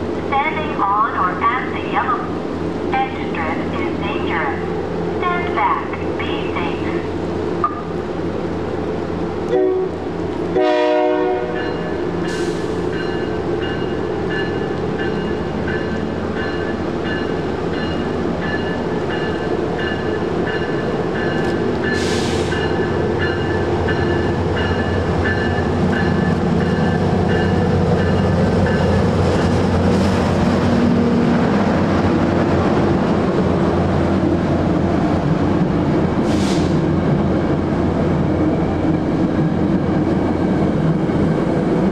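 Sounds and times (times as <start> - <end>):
train running noise: 0.0 - 41.9
train horn blast: 9.5 - 11.7.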